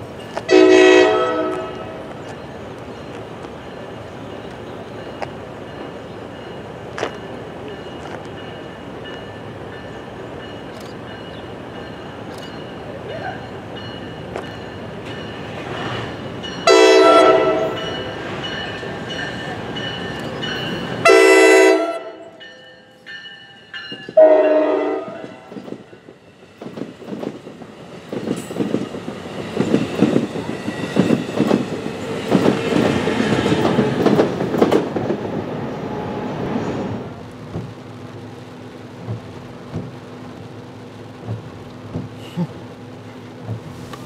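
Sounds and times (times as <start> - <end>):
train horn blasts: 0.5 - 2.1, 16.6 - 18.0, 21.0 - 22.4, 24.1 - 25.5
train wheels clicking over rail joints: 1.4 - 12.8, 25.2 - 35.5, 37.3 - 37.8, 39.0 - 40.3, 41.1 - 44.0.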